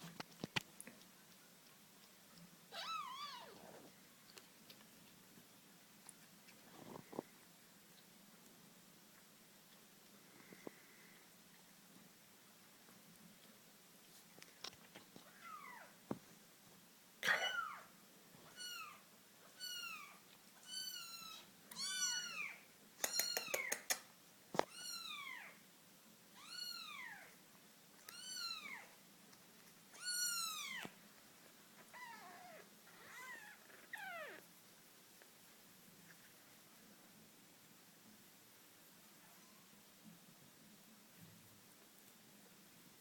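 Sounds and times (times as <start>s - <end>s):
kitten meowing: 2.7s - 3.6s, 19.6s - 23.8s, 29.9s - 30.9s, 31.9s - 34.4s.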